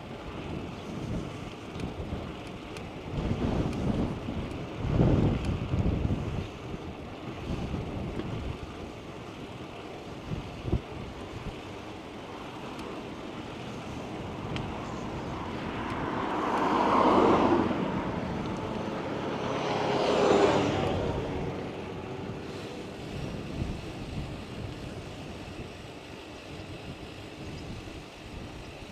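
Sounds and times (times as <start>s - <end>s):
cars passing close by: 11.0s - 25.2s.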